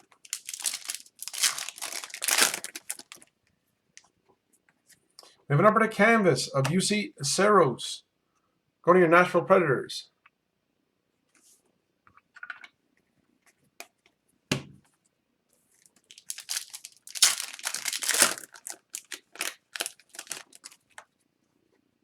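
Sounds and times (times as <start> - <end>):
wrapper crackling and crinkling: 0.0 - 3.3, 15.8 - 21.0.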